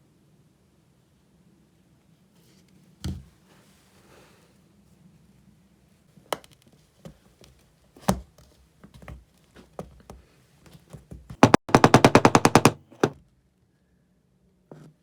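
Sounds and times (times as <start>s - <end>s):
hard objects knocking: 11.4s - 13.2s.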